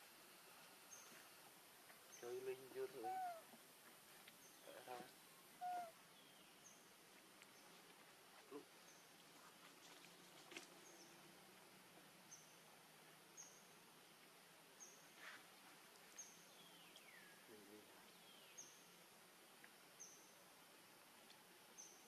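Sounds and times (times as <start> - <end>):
bird chirping: 2.1 - 3.5, 4.4 - 6.9, 16.2 - 19.0.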